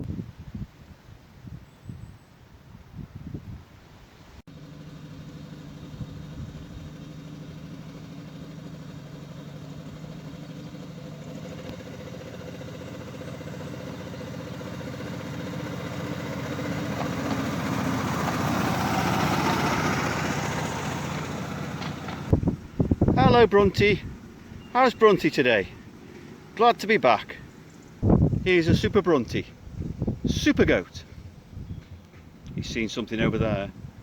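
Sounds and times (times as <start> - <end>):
small petrol engine running: 4.5 - 24.6.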